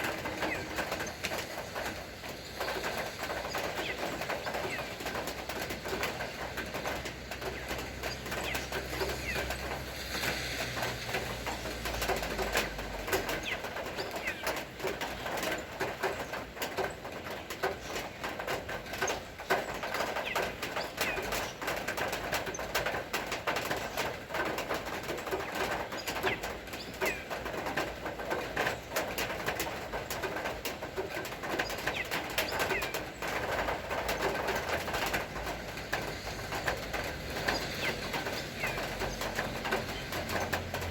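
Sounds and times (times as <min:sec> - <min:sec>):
birds calling: 0:00.0 - 0:09.8, 0:11.8 - 0:22.8, 0:23.6 - 0:27.6, 0:31.0 - 0:40.9
patter of irregular ticks: 0:10.8 - 0:40.9.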